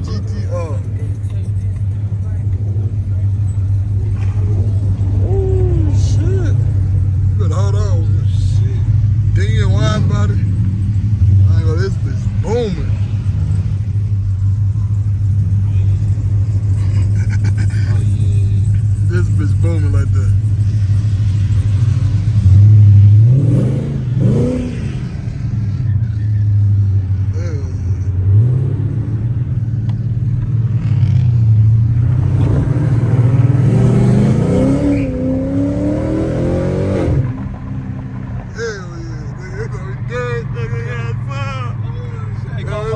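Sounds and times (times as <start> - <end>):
car exhaust deep drone: 0.0 - 42.9.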